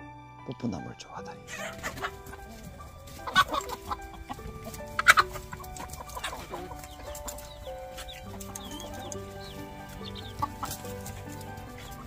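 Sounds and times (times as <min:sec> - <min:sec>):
chickens clucking: 0:01.5 - 0:12.0
loud chicken calls: 0:01.5 - 0:12.0.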